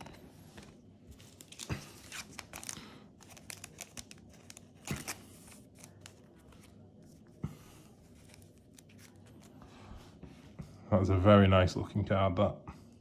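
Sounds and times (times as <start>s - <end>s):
foil wrapper crinkling and tearing: 1.2s - 6.4s.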